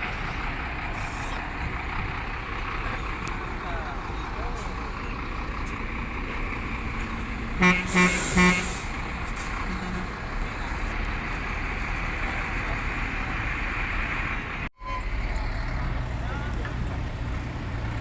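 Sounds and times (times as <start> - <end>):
dump truck running: 0.0 - 18.0
truck horn toots: 7.6 - 10.2, 14.8 - 15.3
air hiss: 7.9 - 9.0.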